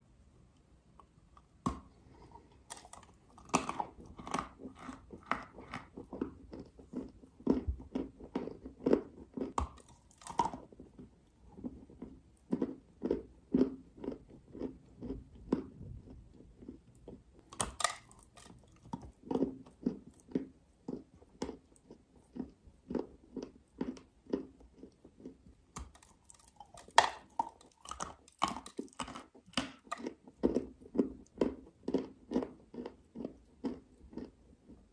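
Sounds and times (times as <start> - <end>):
steady chewing: 1.0 - 34.9
crunching bites of dry clay: 2.6 - 11.1.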